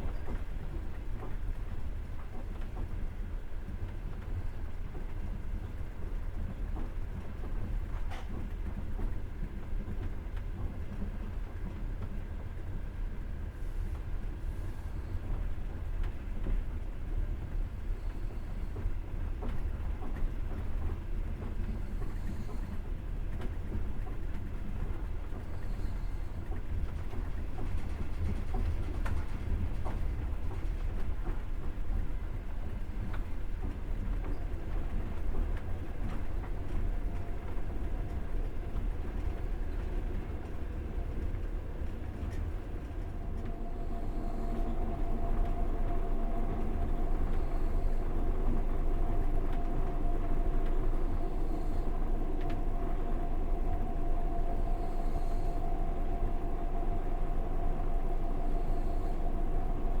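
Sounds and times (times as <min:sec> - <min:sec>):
train wheels rumbling on rails: 0:00.0 - 1:00.0
steady whine: 0:34.8 - 1:00.0.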